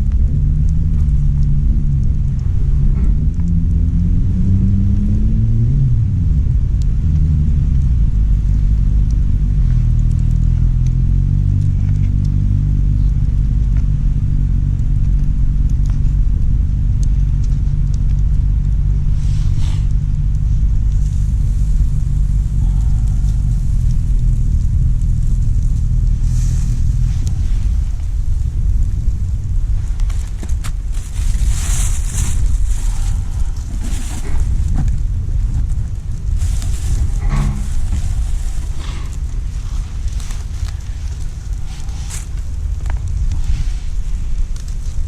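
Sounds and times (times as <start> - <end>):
low engine-like drone: 0.0 - 45.0
pitched hum: 10.9 - 45.0.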